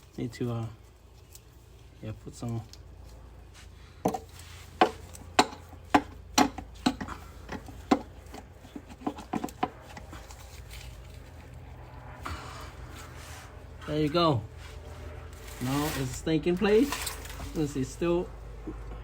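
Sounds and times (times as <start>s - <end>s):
tool tapping and knocking: 4.0s - 10.1s.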